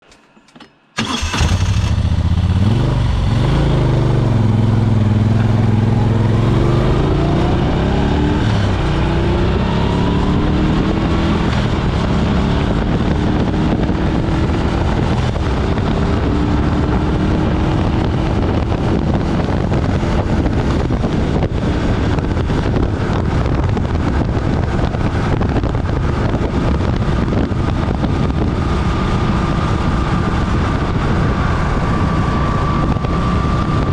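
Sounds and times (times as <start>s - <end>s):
motorcycle engine revving: 1.0s - 33.9s
wind noise: 1.0s - 33.9s.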